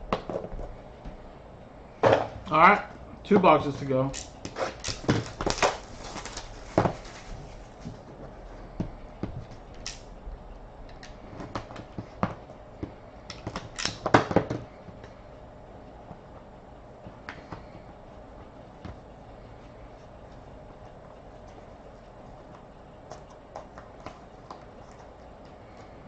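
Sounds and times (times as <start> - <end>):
cardboard clicks and crinkles: 4.5 - 8.2.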